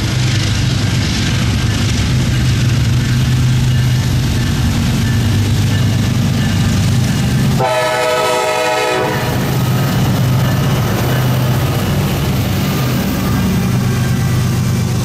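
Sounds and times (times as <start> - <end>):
diesel locomotive engine drone: 0.0 - 15.0
train air horn blast: 7.6 - 9.5.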